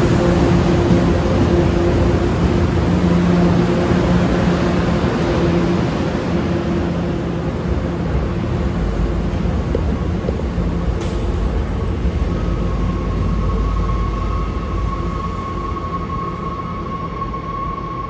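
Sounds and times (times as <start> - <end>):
diesel train engine humming: 0.0 - 18.0.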